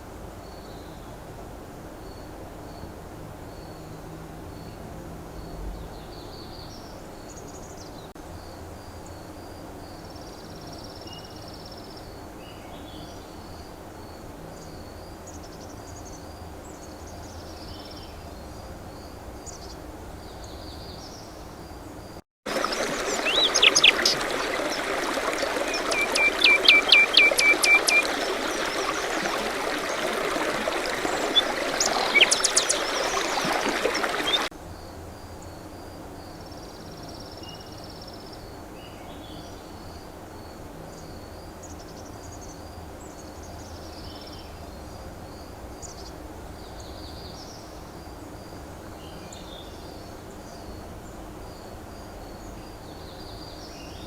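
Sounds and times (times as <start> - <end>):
bird trill: 22.5 - 34.5
running water rushing: 22.5 - 34.5
small birds chirping: 22.5 - 34.5.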